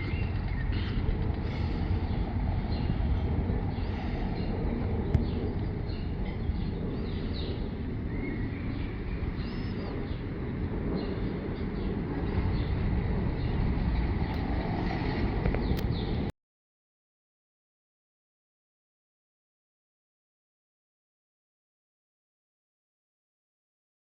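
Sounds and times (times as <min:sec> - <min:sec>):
songbirds chirping: 0:00.0 - 0:16.3
steady low rumble: 0:00.0 - 0:16.3.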